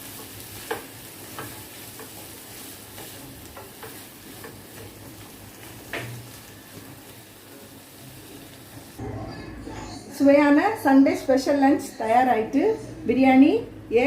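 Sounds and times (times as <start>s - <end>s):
chicken sizzling in a pan: 0.0s - 9.0s
spoon scraping and tapping a pan: 0.2s - 6.2s.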